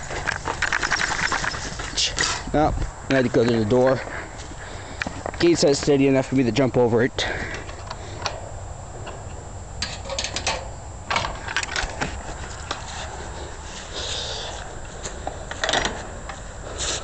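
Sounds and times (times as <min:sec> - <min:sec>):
gate rattling open and shut: 0:09.8 - 0:12.0.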